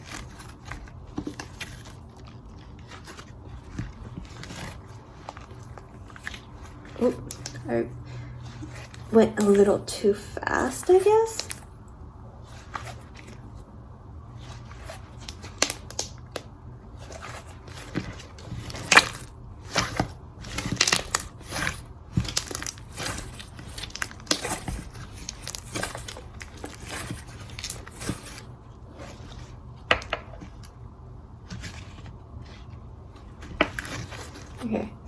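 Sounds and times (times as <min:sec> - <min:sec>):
slime crackling and popping: 0:15.2 - 0:16.5, 0:18.3 - 0:28.0.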